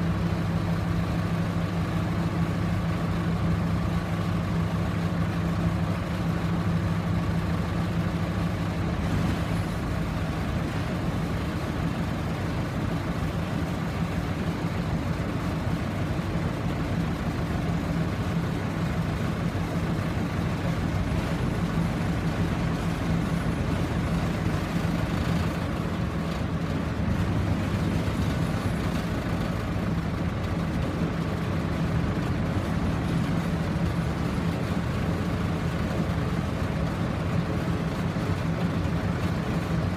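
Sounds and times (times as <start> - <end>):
heavy crane engine running: 0.0 - 39.9.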